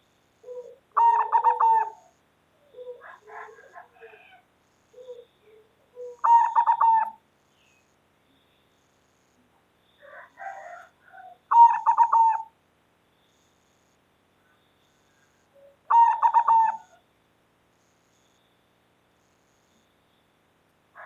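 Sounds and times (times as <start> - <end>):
dove cooing: 0.4 - 7.2, 10.1 - 12.5, 15.5 - 17.0.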